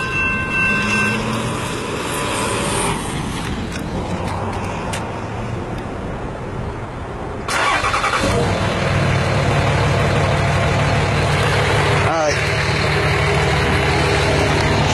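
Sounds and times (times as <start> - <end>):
car engine starting and idling: 7.4 - 14.9.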